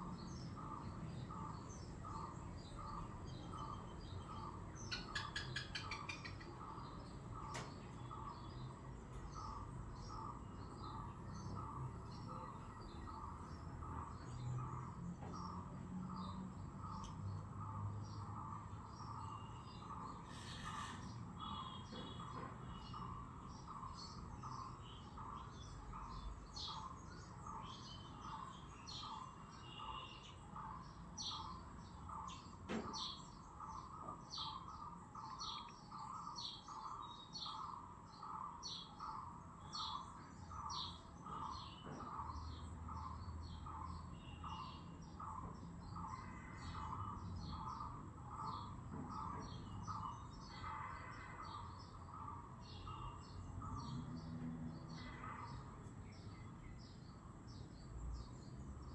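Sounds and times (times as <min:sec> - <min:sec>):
small birds chirping: 0:00.0 - 0:58.9.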